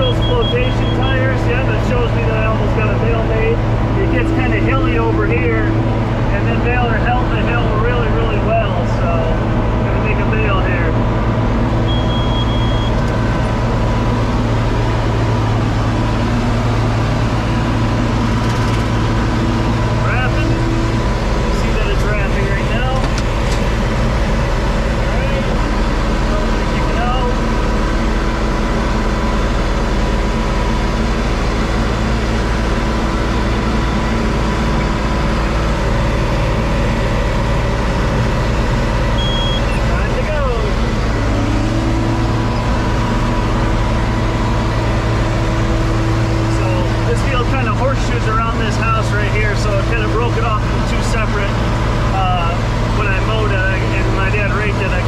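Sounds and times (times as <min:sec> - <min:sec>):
tractor diesel engine running: 0:00.0 - 0:55.0
short high beep: 0:11.9 - 0:13.0, 0:39.2 - 0:39.8.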